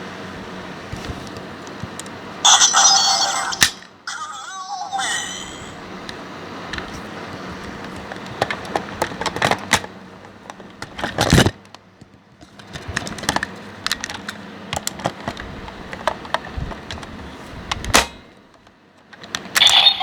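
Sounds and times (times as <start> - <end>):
plastic toy clicking and clattering: 8.1 - 9.9, 19.1 - 20.0.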